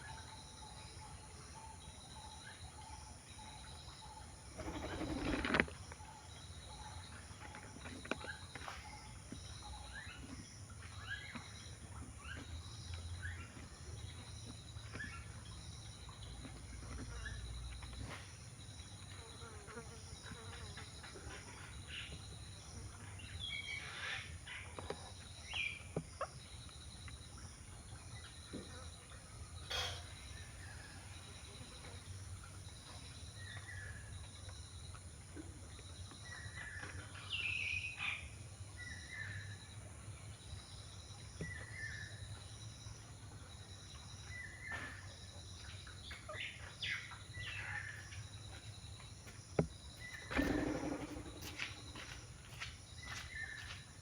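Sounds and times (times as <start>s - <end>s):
birds chirping and calling: 4.6s - 5.7s, 44.3s - 53.8s
steady low hum: 48.5s - 53.0s.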